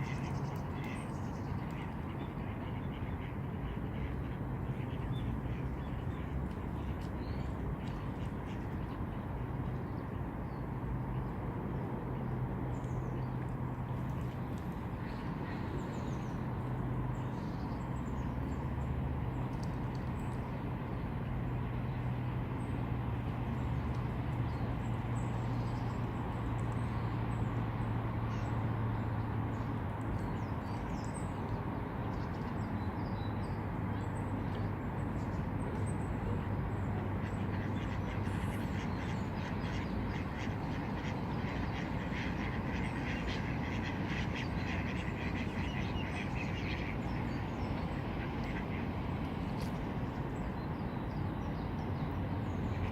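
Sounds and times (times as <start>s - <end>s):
low hum and rumble: 0.0s - 52.9s.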